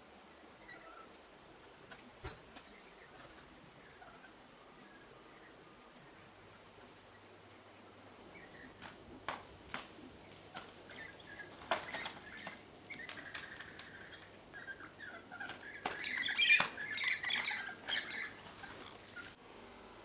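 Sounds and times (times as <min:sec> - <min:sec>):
bird calls: 0:00.4 - 0:19.4
wing flutters: 0:08.3 - 0:19.4.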